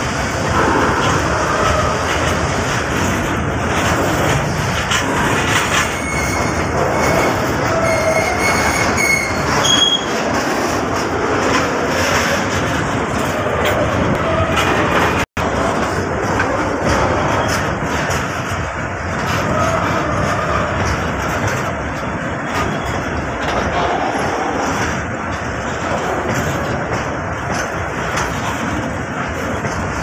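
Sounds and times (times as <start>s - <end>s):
train wagons rumbling past: 0.0s - 30.0s
high-pitched wheel squeals: 5.7s - 10.2s.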